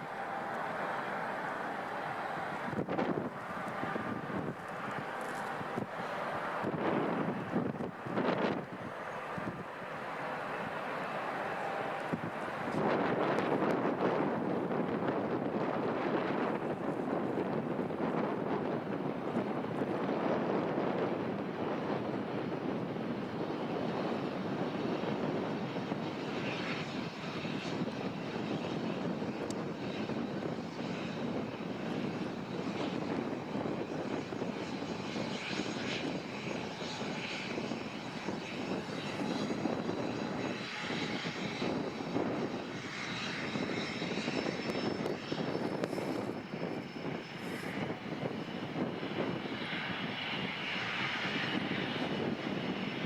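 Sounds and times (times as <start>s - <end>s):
airliner engines rushing: 0.0s - 53.0s.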